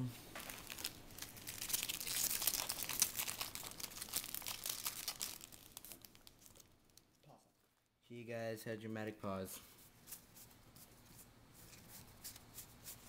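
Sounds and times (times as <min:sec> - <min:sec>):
foil wrapper crinkling: 0:00.4 - 0:07.2.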